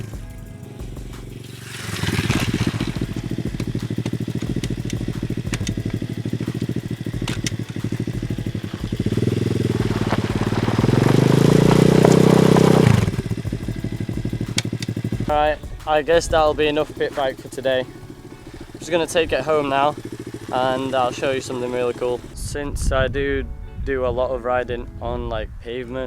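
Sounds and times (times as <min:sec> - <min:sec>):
motorbike engine revving: 0:00.0 - 0:22.6.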